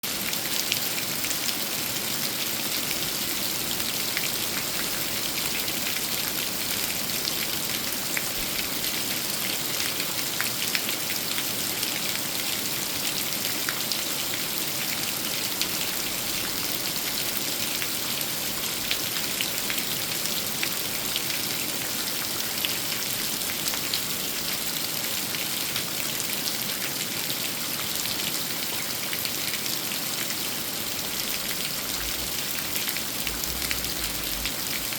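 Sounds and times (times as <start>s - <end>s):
rain falling: 0.1s - 34.9s
raindrops ticking: 31.9s - 34.9s.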